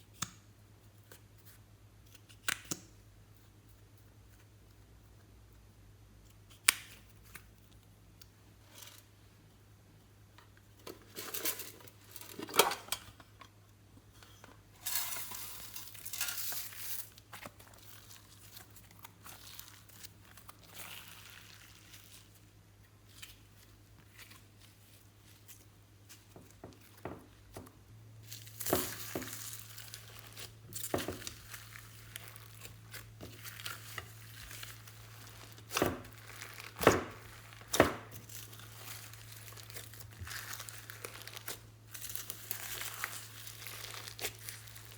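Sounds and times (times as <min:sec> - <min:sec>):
plastic crinkling: 0:14.8 - 0:22.5, 0:23.1 - 0:44.9.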